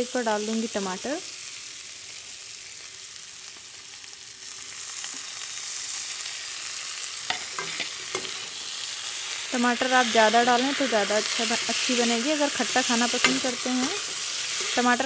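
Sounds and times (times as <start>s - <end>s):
potatoes frying in oil: 0.0s - 15.0s.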